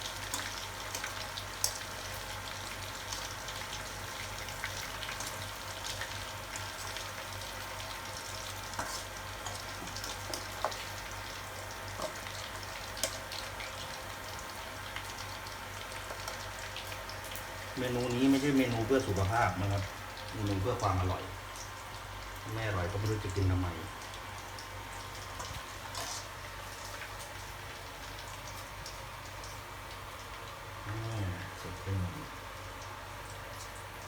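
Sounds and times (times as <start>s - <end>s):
oil crackles and pops: 0.0s - 31.1s, 32.5s - 34.0s
meat sizzling in hot oil: 0.0s - 34.0s.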